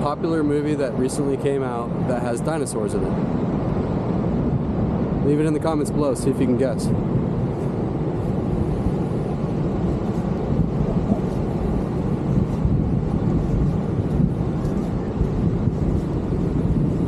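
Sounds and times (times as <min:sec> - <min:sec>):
ocean surf roar: 0:00.0 - 0:17.0
wind: 0:00.0 - 0:17.0.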